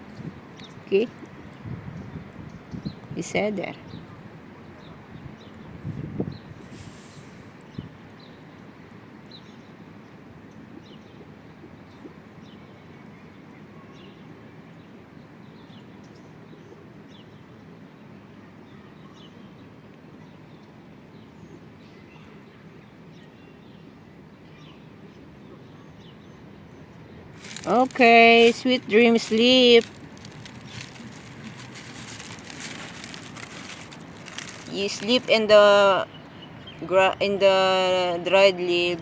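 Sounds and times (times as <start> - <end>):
small birds chirping: 20.3 - 38.1.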